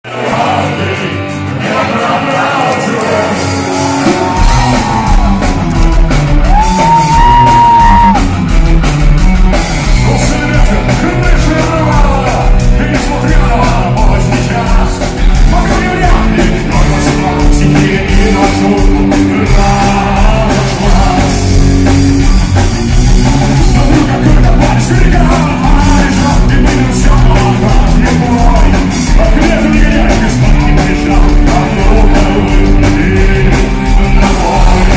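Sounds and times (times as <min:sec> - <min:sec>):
person singing: 0:00.0 - 0:05.6, 0:09.9 - 0:21.6, 0:23.2 - 0:34.9
rock band playing live: 0:00.0 - 0:34.9.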